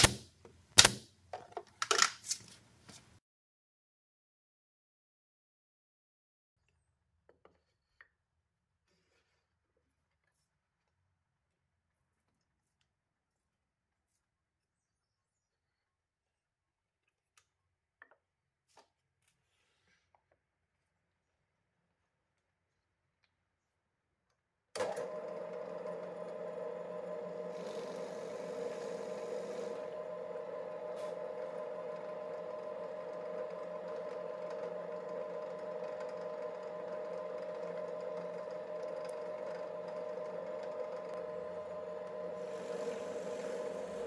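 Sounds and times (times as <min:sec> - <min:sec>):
power tool motor humming: 0:24.8 - 0:44.0.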